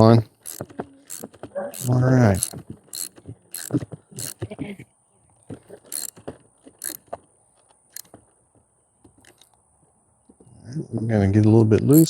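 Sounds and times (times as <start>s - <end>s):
socket wrench clicking: 0.4s - 4.4s, 5.9s - 6.2s, 6.8s - 7.0s.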